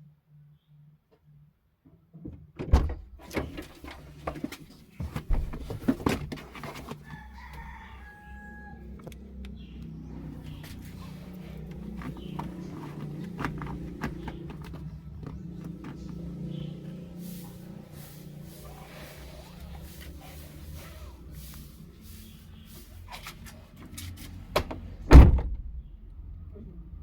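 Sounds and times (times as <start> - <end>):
knocks and thumps: 2.2 - 7.0, 11.7 - 16.4, 24.5 - 25.9.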